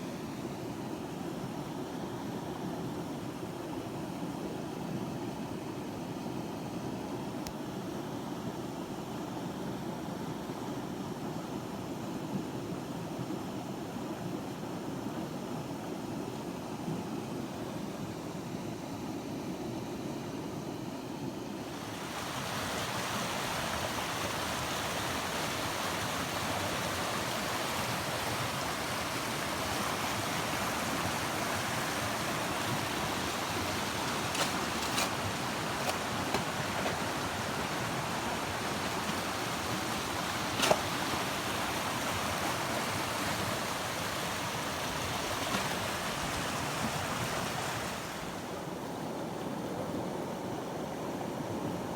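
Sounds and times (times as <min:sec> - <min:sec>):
river rushing: 0:21.7 - 0:48.6.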